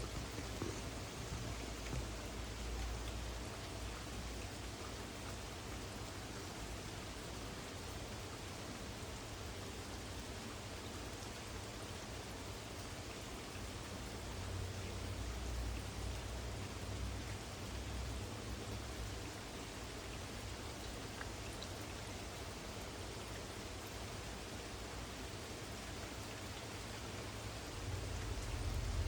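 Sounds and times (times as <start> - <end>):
steady rain: 0.0 - 29.0
wind rumble on microphone: 27.8 - 29.0.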